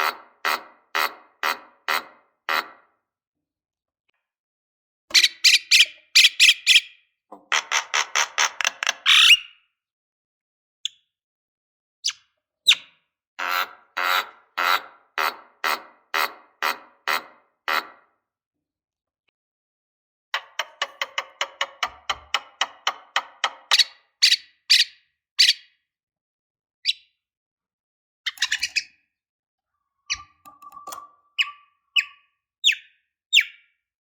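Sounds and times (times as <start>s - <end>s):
bird calling in harsh notes: 30.0s - 33.6s.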